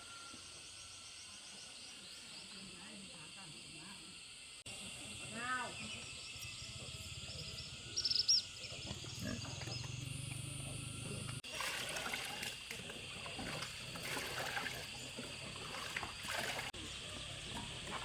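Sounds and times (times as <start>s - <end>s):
high bird chirps: 7.4s - 10.1s.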